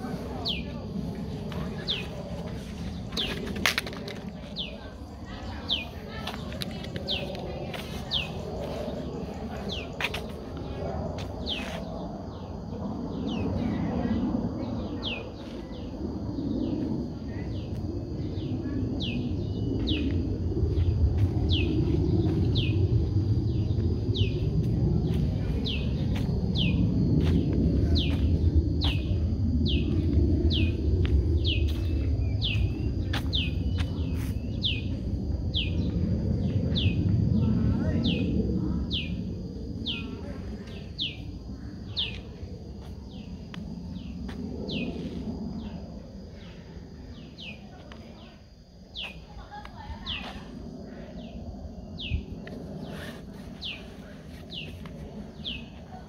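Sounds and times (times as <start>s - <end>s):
low outdoor noise: 0.0s - 56.0s
low rumble: 0.0s - 56.0s
songbird calling: 0.3s - 0.8s, 1.5s - 10.2s, 11.4s - 11.8s, 18.3s - 20.1s, 21.5s - 22.8s, 31.4s - 34.9s, 51.2s - 56.0s.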